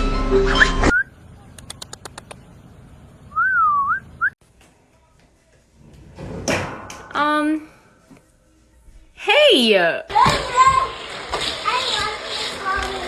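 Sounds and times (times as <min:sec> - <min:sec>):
whistled note: 0:03.3 - 0:04.4.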